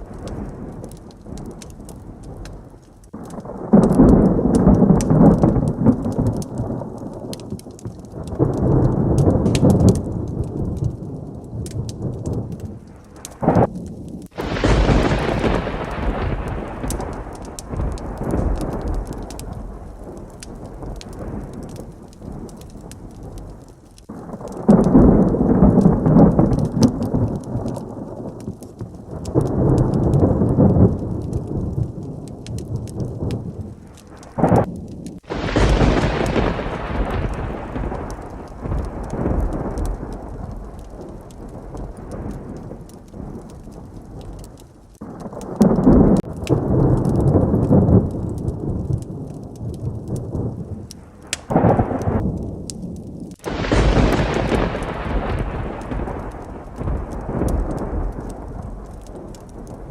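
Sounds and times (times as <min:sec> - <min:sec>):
close thunder clap: 0:00.0 - 0:59.9
heavy rain: 0:00.0 - 0:59.9
thunder rumbling: 0:00.0 - 0:59.9.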